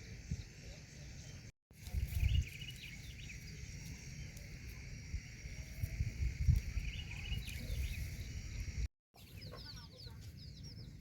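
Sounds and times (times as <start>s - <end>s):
chickens calling: 6.6s - 11.0s.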